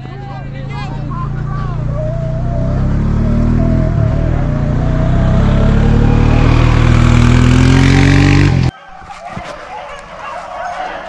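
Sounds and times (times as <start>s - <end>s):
engine accelerating loudly: 0.0s - 8.7s.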